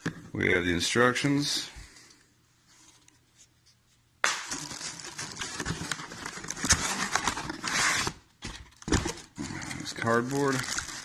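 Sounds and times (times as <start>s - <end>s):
packaging rustling and crinkling: 4.5s - 11.0s.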